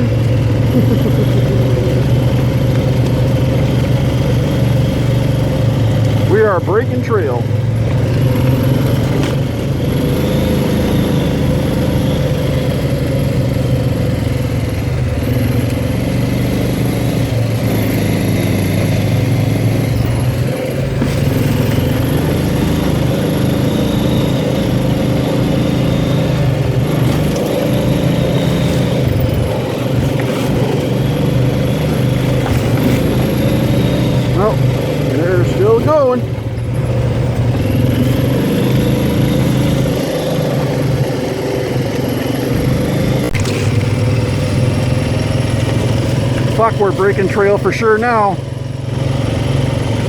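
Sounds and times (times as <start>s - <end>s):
atv engine running under load: 0.0s - 50.0s.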